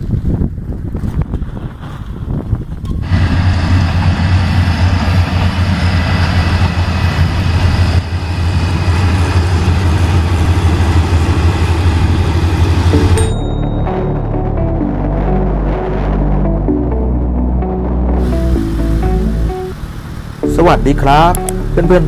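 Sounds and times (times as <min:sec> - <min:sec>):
diesel train engine drone: 0:02.9 - 0:22.0
music: 0:12.9 - 0:19.8, 0:20.4 - 0:22.0.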